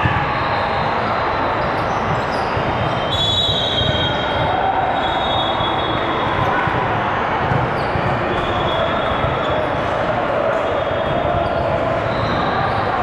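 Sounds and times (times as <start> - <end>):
crowd noise hum: 0.0 - 13.0
sneakers squeaking on court: 7.5 - 8.6.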